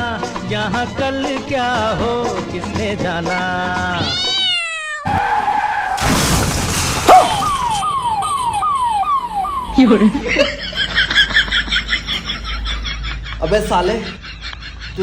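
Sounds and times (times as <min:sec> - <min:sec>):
tyre skid screech: 0:05.0 - 0:07.8
falling wails: 0:05.0 - 0:10.5.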